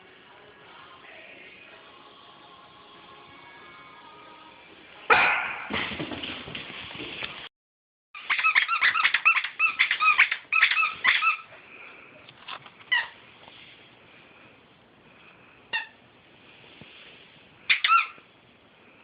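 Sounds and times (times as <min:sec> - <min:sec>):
puppy yipping and whining: 0:08.2 - 0:11.6, 0:17.7 - 0:18.2.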